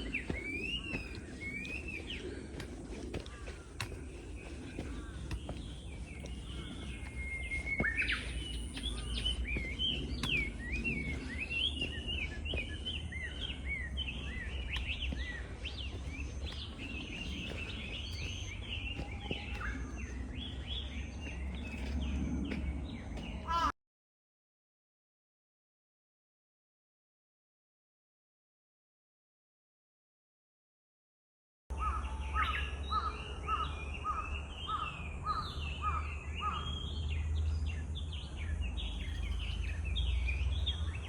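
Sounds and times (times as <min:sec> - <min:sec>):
steady low rumble: 0:00.0 - 0:23.4
small birds chirping: 0:00.0 - 0:23.7, 0:31.7 - 0:41.0.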